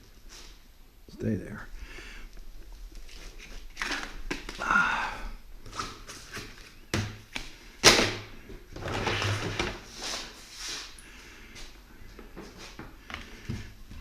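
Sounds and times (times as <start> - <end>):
rustling and scraping: 2.4 - 4.6, 8.4 - 14.0.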